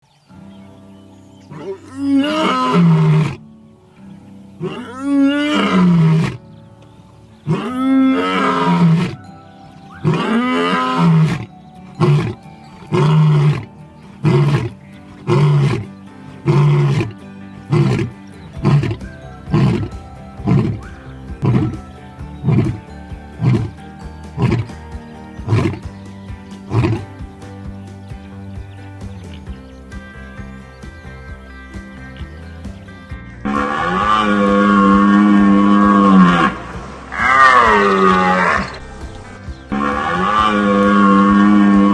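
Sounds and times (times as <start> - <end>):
background music: 0.0 - 41.9
lion roaring: 1.5 - 3.4, 4.6 - 6.4, 7.4 - 9.2, 9.9 - 23.8, 24.4 - 24.7, 25.4 - 25.9, 33.5 - 41.9.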